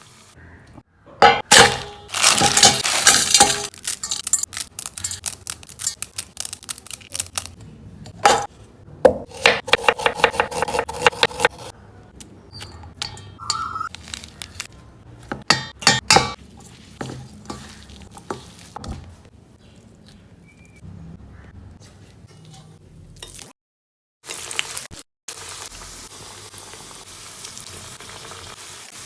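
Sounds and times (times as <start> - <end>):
utensils and dishes clattering: 1.2 - 6.2, 12.6 - 13.9
spoon stirring in metal bowl: 2.1 - 7.5, 12.6 - 14.4, 15.4 - 19.3.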